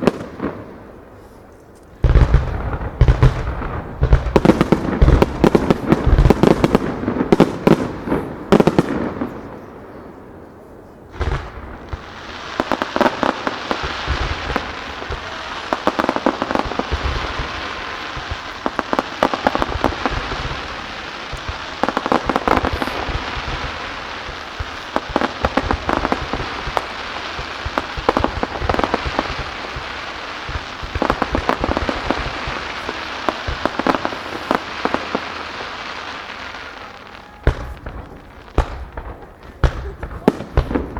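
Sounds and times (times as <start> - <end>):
fireworks bursting: 0.0 - 40.9
fireworks crackling and popping: 0.0 - 40.9
firework bang: 11.2 - 35.4, 36.4 - 40.9.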